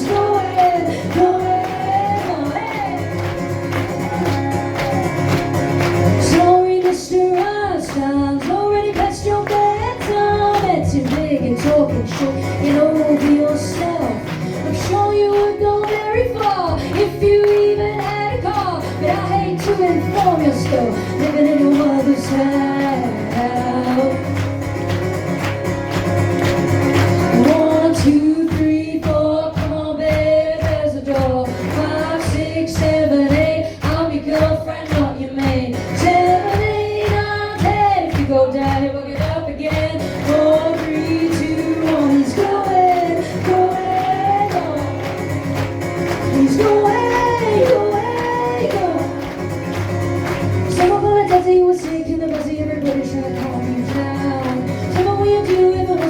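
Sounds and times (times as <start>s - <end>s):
woman singing: 0.0s - 56.0s
live band playing upbeat song: 1.2s - 6.5s, 23.4s - 27.8s.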